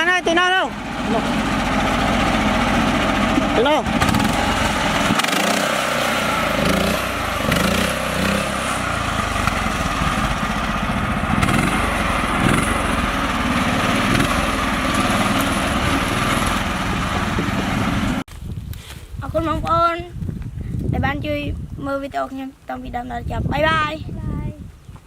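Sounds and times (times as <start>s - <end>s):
small tractor engine running: 0.0s - 18.3s.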